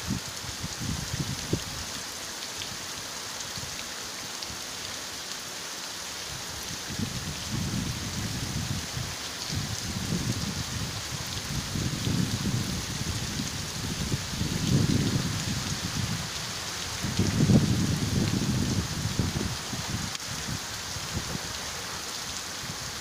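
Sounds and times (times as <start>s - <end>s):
heavy rain splashing on street: 0.0s - 23.0s.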